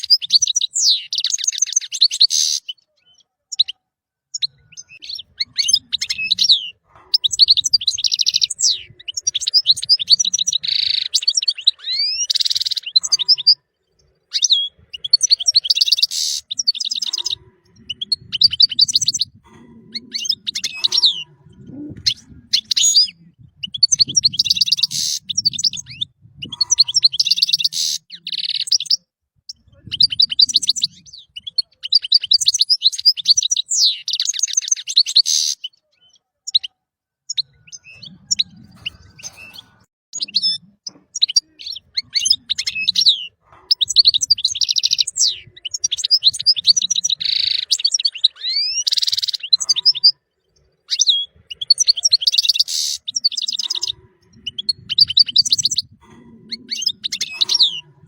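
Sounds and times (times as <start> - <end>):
bird twittering and trilling: 0.0 - 58.0.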